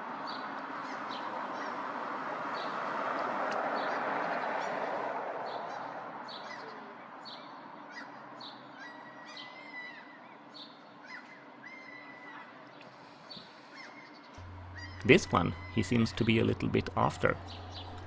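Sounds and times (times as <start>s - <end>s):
background noise: 14.4s - 18.0s
birds chirping: 14.4s - 18.0s
drawn-out bird whistles: 14.4s - 18.0s.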